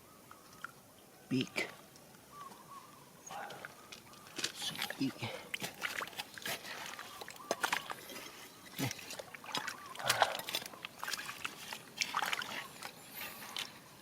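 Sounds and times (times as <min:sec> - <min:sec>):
water splashing in river: 0:08.8 - 0:13.0.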